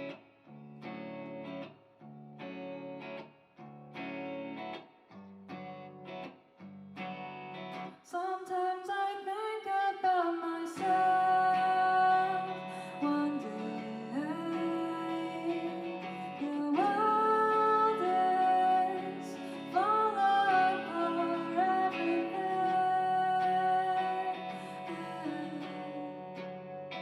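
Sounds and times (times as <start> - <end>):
guitar chords in rhythmic stabs: 0.0 - 27.0
person singing: 8.1 - 27.0.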